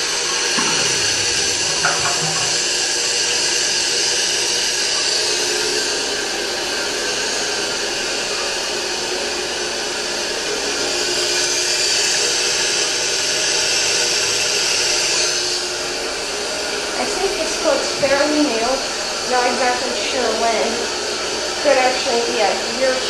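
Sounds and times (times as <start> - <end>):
toilet tank refilling hiss: 0.0 - 23.0.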